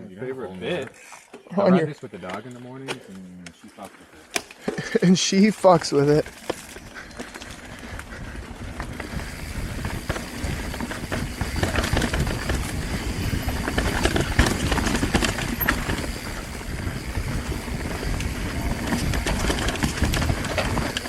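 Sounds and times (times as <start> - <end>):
bike tyres over dirt and rocks: 4.6 - 21.0
wind on microphone: 7.5 - 21.0
bike rattling knocks: 8.8 - 21.0.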